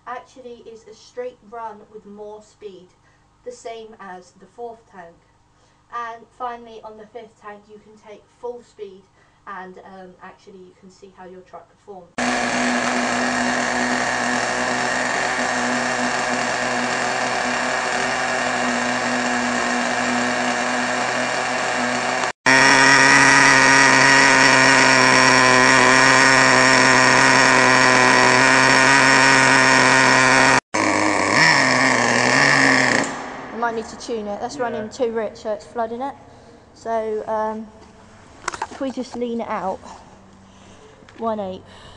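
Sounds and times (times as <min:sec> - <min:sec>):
nitro engine idling: 0:12.2 - 0:36.4.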